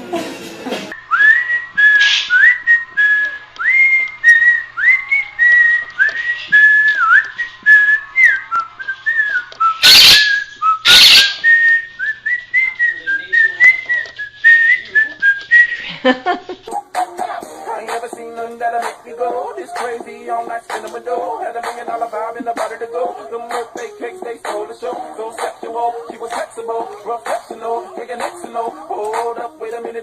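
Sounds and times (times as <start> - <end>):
parrot whistling a tune: 1.0 - 15.8
loud harsh bursts: 9.8 - 11.4.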